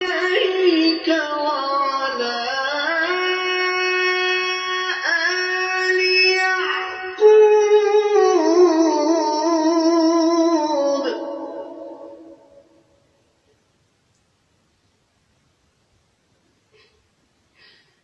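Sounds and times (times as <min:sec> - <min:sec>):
person chanting melodically: 0:00.0 - 0:12.9.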